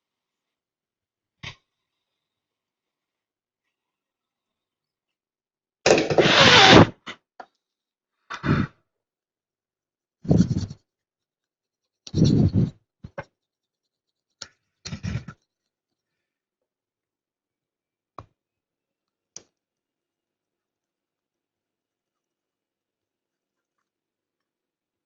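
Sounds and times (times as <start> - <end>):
scraping on a circuit board: 10.2 - 10.8, 11.8 - 15.7.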